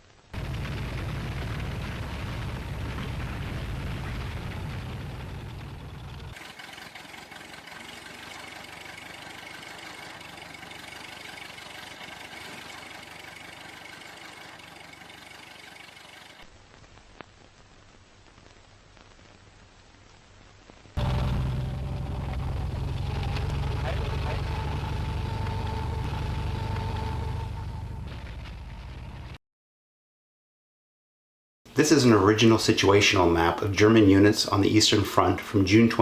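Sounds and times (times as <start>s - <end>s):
vehicle engine noise: 0.4s - 16.4s, 21.0s - 29.4s.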